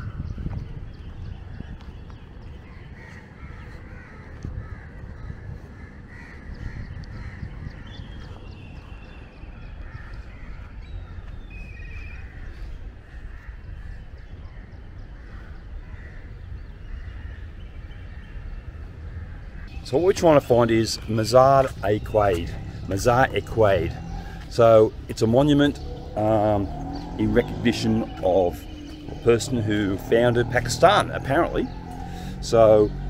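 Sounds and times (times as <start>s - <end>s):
birds calling: 0.0s - 33.0s
low steady rumble: 15.9s - 33.0s.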